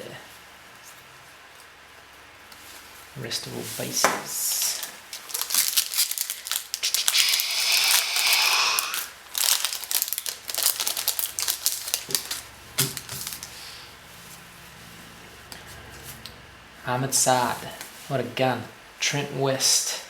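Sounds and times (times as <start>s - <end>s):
wrapper tearing: 4.6s - 13.6s.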